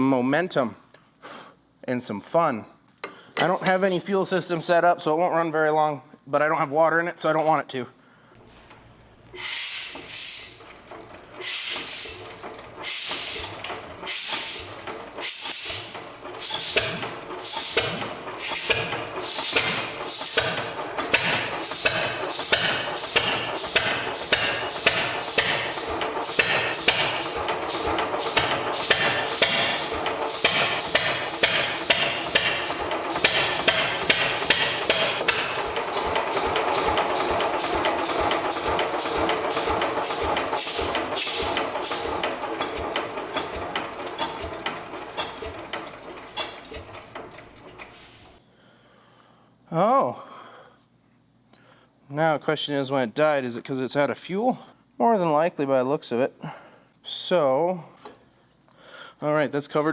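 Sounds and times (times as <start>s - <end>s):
diesel engine being hand cranked: 8.4s - 48.4s.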